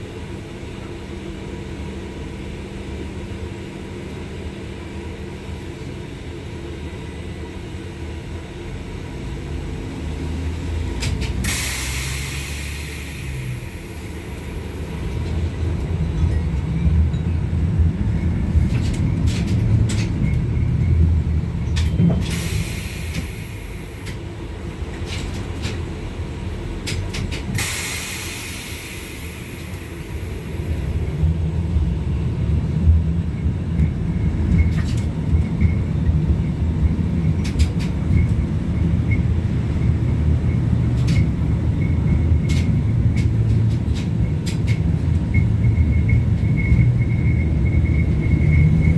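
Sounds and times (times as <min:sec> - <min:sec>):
tram wheels rumbling: 0:00.0 - 0:48.9
track clicks and knocks: 0:15.0 - 0:22.5, 0:26.6 - 0:27.7, 0:32.8 - 0:48.9.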